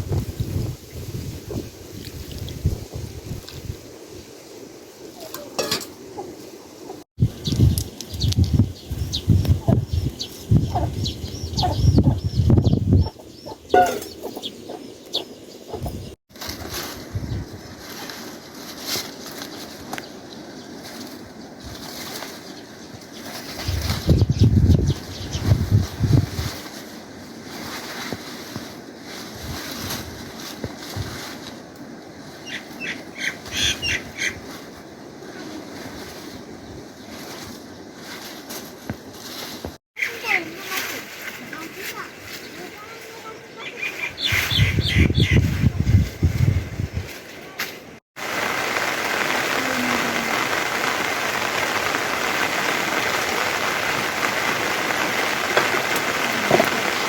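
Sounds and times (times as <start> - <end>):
chickens clucking: 10.6 - 16.1
rustling: 16.3 - 24.2, 25.0 - 32.8, 34.4 - 44.6, 45.4 - 57.0
high bird chirps: 32.5 - 34.4, 43.3 - 45.6
steady background hiss: 47.1 - 57.0.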